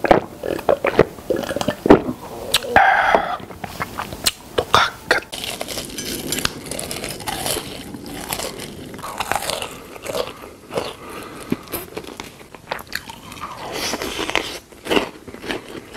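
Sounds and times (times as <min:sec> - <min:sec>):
person chewing crunchy food: 0:00.0 - 0:15.9.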